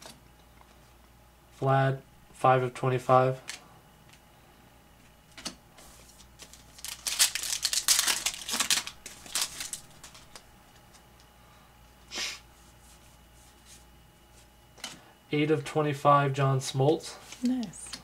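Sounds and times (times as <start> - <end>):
card packaging tick: 6.4 - 10.8.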